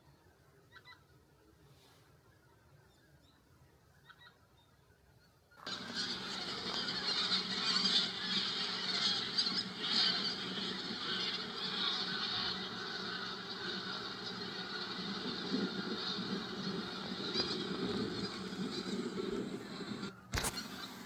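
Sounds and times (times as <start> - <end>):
geese honking: 5.6 - 21.0.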